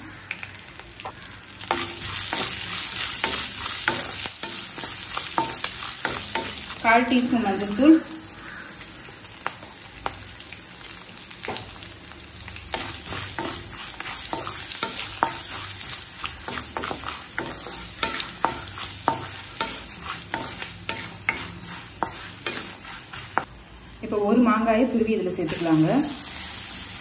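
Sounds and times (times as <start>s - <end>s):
oil sizzling in a pan: 0.0s - 27.0s
spatula scraping and tapping pan: 1.0s - 6.8s, 12.7s - 23.5s.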